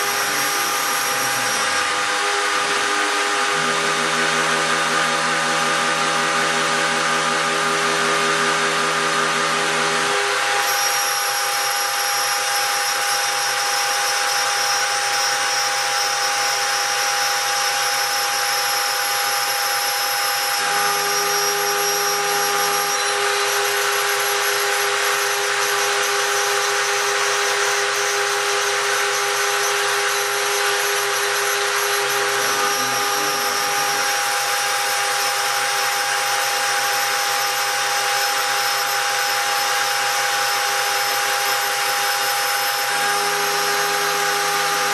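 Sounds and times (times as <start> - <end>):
milling spindle whine: 0.0 - 44.9.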